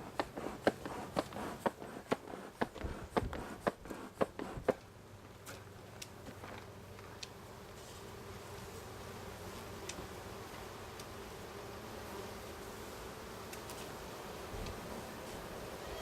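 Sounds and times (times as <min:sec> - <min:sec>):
honeybees buzzing: 0:00.0 - 0:16.0.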